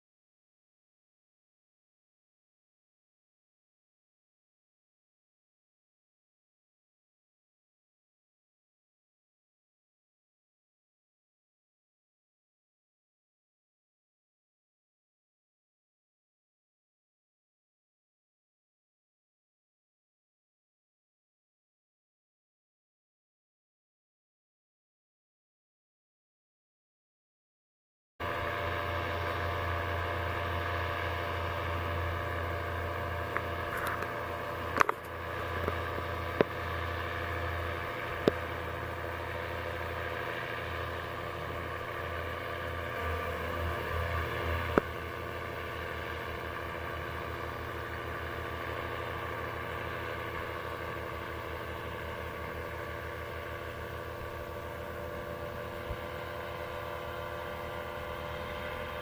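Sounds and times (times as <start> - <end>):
paramotor engine droning: 28.2 - 59.0.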